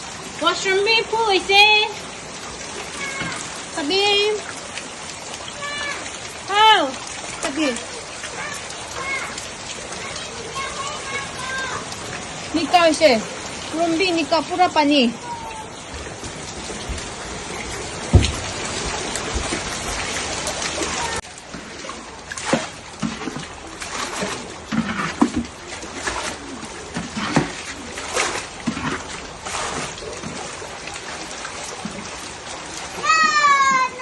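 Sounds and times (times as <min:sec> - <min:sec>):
floodwater rushing: 0:00.0 - 0:34.0
water splashing: 0:00.0 - 0:34.0
thump: 0:18.1 - 0:18.5.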